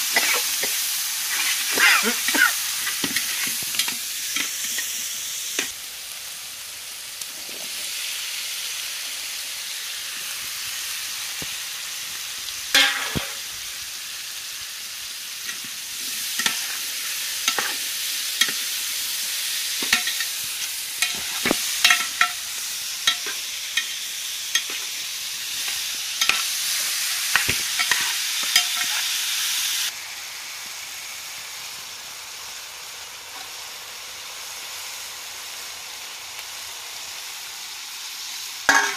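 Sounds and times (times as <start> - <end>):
vegetables sizzling in oil: 0.0 - 38.9.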